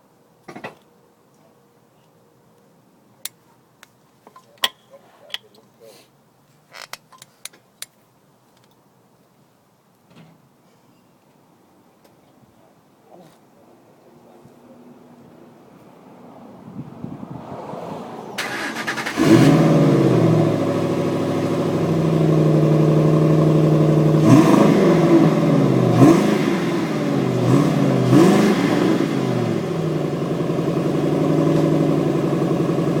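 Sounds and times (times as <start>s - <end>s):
car engine idling and revving: 17.0s - 33.0s
car engine cranking: 18.4s - 26.6s.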